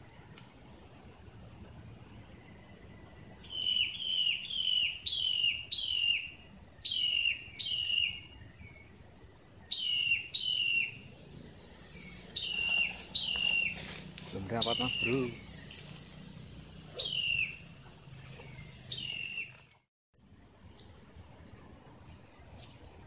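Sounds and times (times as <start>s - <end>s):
bird calling with descending notes: 3.4s - 8.2s, 9.7s - 15.9s, 16.8s - 19.8s
high-pitched insect buzz: 9.6s - 19.0s.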